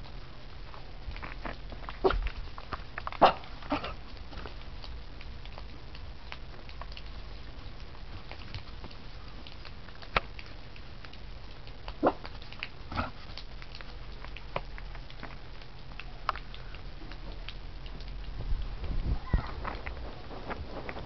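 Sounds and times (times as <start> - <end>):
small clicks and taps: 8.2 - 18.7.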